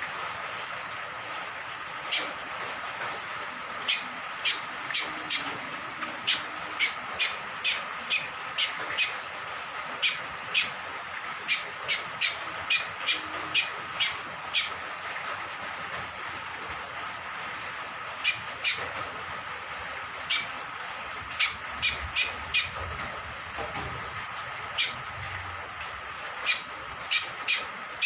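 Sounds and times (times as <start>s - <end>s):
rain hiss: 0.0s - 28.0s.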